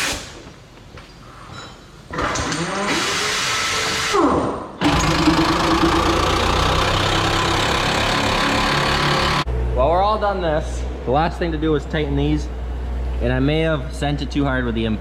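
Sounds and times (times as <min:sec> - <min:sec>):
vehicle engine running loudly: 0:04.8 - 0:09.8.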